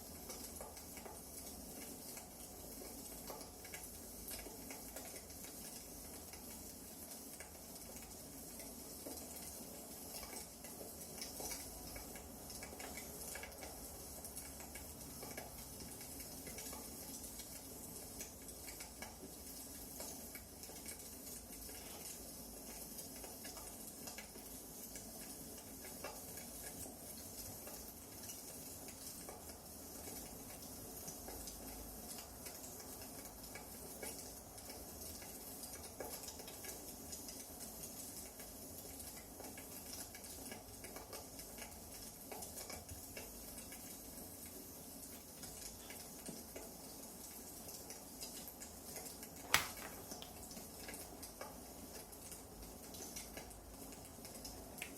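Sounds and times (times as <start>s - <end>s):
wood fire crackling: 38.2s - 54.9s
fire popping: 49.4s - 50.5s.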